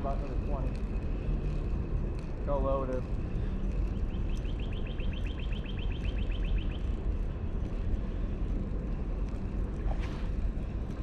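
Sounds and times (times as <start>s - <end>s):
low outdoor rumble: 0.0s - 11.0s
songbird trill: 3.8s - 7.1s.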